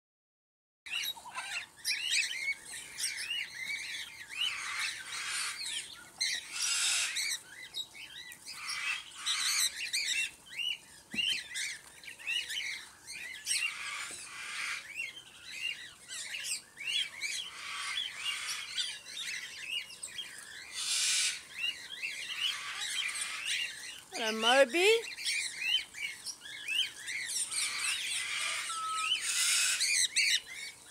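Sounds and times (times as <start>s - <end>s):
cockatiels chirping: 0.9s - 30.9s.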